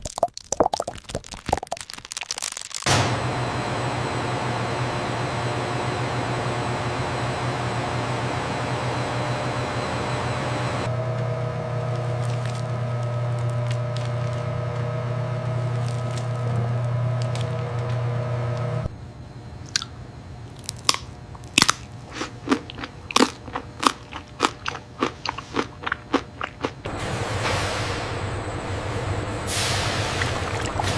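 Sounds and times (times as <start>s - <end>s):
sharp irregular crunches: 0.0s - 2.9s, 12.0s - 14.4s, 15.6s - 17.5s, 20.5s - 26.8s
factory machine hum: 2.9s - 30.9s.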